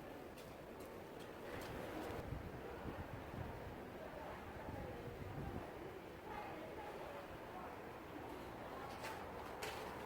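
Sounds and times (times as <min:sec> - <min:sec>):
faint steady background noise: 0:00.0 - 0:10.0.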